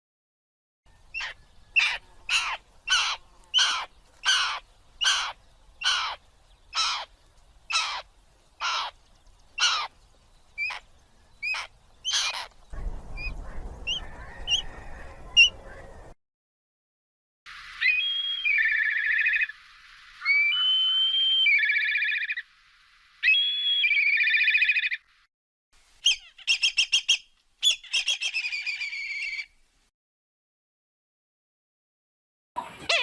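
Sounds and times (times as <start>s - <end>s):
background hiss: 0.9s - 13.8s, 17.5s - 29.9s
bird of prey harsh calls: 1.2s - 6.2s, 6.8s - 7.1s, 7.7s - 8.0s, 8.6s - 9.0s, 9.6s - 9.9s, 11.4s - 12.5s
thin high bird chirps: 17.7s - 22.5s, 26.0s - 29.5s.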